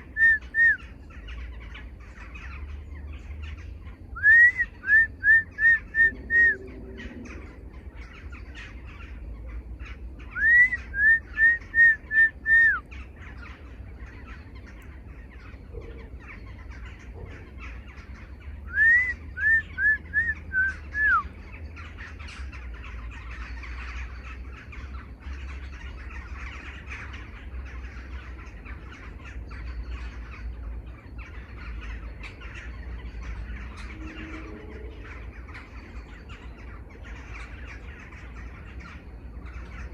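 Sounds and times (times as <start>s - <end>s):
bird calling repeated notes: 0.0s - 1.4s, 4.1s - 6.7s, 10.2s - 13.0s, 18.6s - 21.4s
faint chirps of other birds: 0.0s - 39.9s
steady low rumble: 0.0s - 39.9s.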